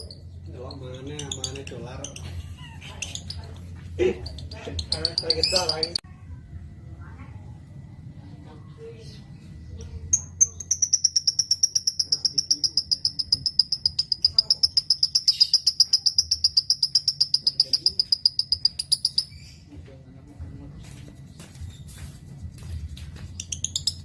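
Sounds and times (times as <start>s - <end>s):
lovebird rapid trill: 0.0s - 3.6s, 4.2s - 6.0s, 10.1s - 19.7s, 23.2s - 24.0s
scattered bird clicks and chirps: 3.0s - 6.0s, 9.8s - 19.5s, 23.3s - 24.0s.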